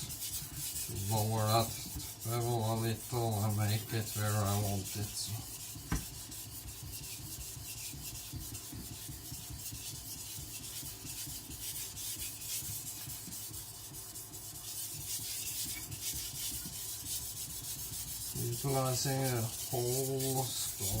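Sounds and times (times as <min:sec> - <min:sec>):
cleaver scraping on whetstone: 0:00.0 - 0:14.0, 0:14.6 - 0:21.0.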